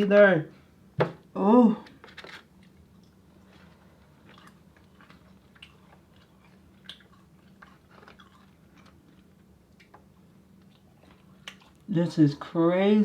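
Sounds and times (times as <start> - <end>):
steady low hum: 0.0 - 13.0
person chewing crunchy food: 2.5 - 11.9.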